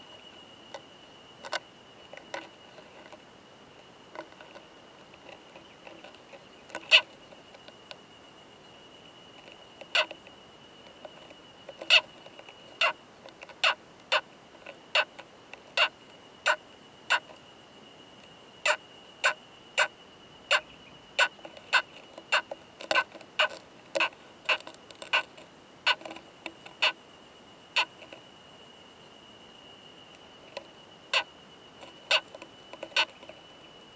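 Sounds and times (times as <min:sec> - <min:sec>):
beetle clicking: 0:21.2 - 0:27.0, 0:30.5 - 0:33.4.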